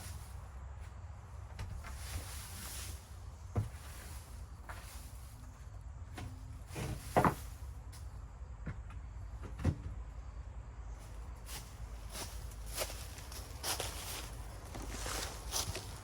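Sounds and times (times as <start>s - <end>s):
dull knocks and thumps: 6.2s - 7.5s, 8.6s - 10.0s.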